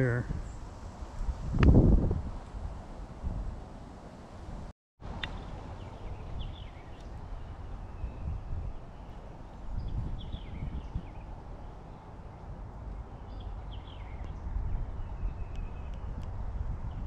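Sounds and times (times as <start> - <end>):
wind rumble on microphone: 0.0 - 17.0
songbirds chirping: 5.0 - 17.0.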